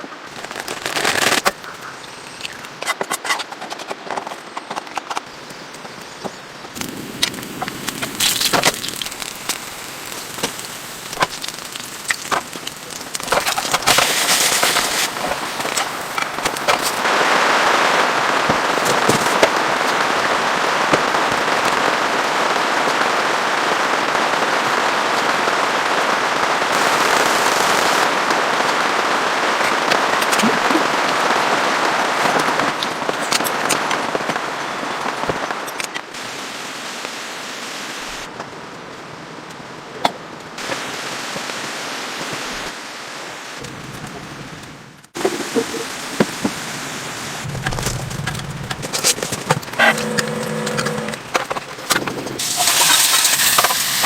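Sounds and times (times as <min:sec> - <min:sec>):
plastic film crackling: 0:00.3 - 0:01.8, 0:06.8 - 0:17.8, 0:48.7 - 0:54.0.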